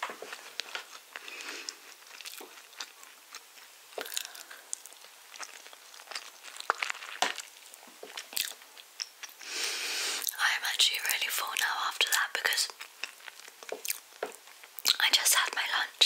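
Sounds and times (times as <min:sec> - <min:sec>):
chewing soft cake: 0:00.2 - 0:09.6, 0:10.2 - 0:16.0
wet mouth clicks: 0:04.0 - 0:04.6, 0:14.8 - 0:15.6.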